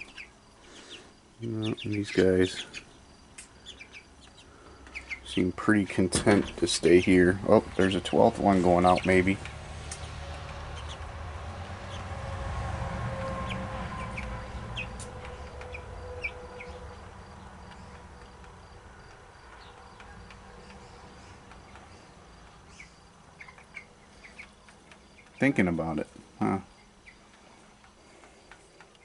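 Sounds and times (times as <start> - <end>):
chickens clucking and peeping: 0.0 - 12.3, 13.1 - 29.0
low rumble: 6.0 - 18.9.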